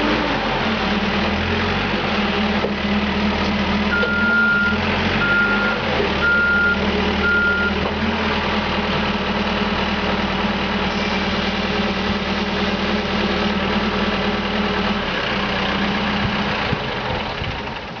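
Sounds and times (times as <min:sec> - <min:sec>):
diesel engine running: 0:00.0 - 0:18.0
reverse alarm beeps: 0:03.9 - 0:07.8.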